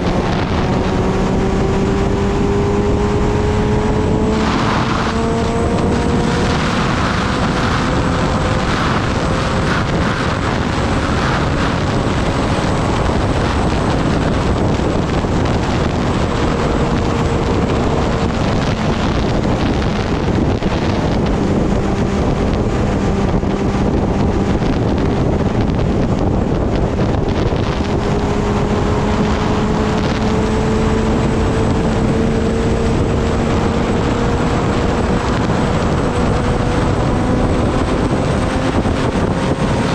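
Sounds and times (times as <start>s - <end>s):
motorcycle engine cruising: 0.0s - 39.9s
wind rush on microphone: 0.0s - 39.9s.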